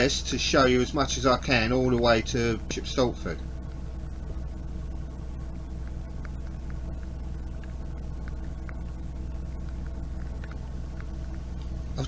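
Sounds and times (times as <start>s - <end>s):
boat engine humming: 0.0s - 12.0s
raindrops ticking on camera: 5.7s - 12.0s.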